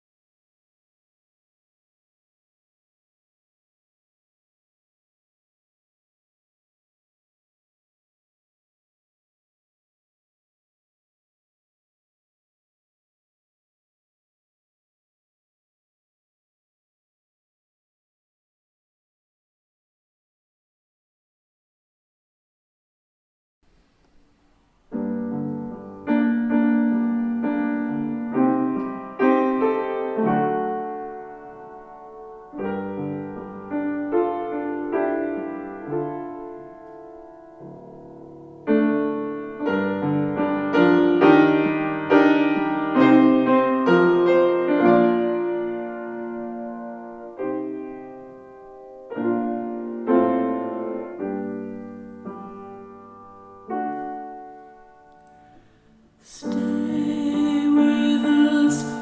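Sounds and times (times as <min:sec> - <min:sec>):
slow piano chords: 0:23.7 - 0:59.0.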